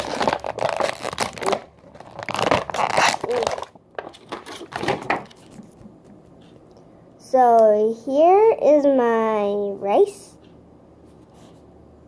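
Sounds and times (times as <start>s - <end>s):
plastic packaging crinkling and tearing: 0.0s - 5.6s.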